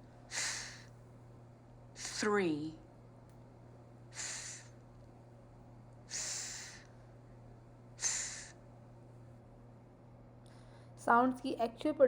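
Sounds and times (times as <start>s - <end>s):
person making breathy th sound: 0.3s - 0.8s, 4.2s - 4.7s, 6.1s - 6.8s, 8.0s - 8.6s.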